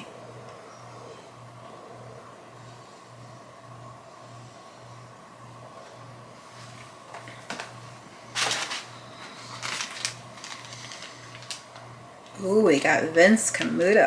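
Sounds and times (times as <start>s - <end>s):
faint pulsing low hum: 0.0s - 14.0s
packaging rustling and crinkling: 8.3s - 11.9s.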